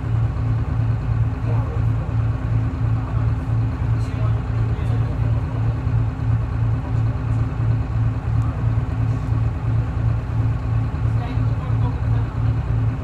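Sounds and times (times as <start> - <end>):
diesel bus engine idling: 0.0 - 13.0.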